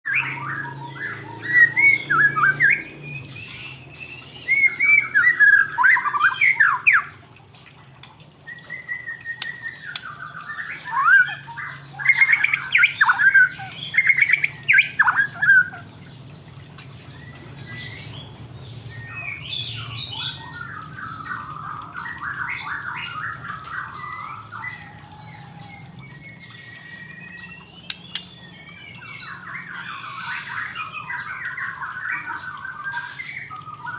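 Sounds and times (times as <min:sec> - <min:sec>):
bird singing whistled phrases: 0:08.4 - 0:15.8, 0:26.1 - 0:33.9.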